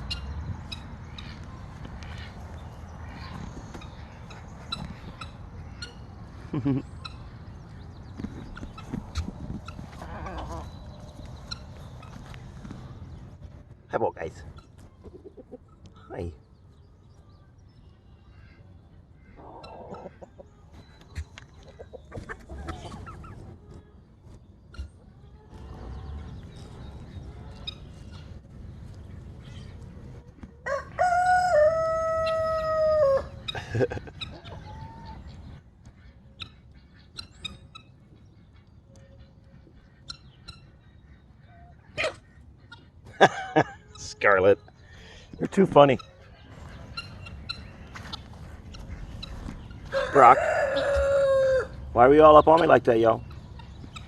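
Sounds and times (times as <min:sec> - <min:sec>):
chickens clucking and calling: 0:00.0 - 0:54.0
loud poultry call: 0:30.7 - 0:35.2, 0:46.0 - 0:52.8.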